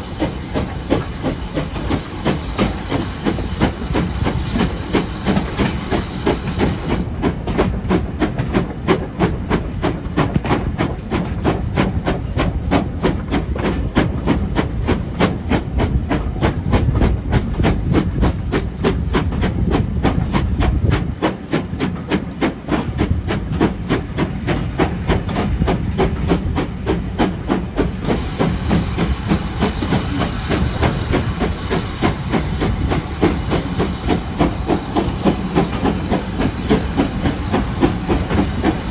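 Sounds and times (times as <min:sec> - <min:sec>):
steam hissing: 0:00.0 - 0:19.0, 0:21.0 - 0:38.9
steam locomotive chuffing: 0:00.0 - 0:38.9.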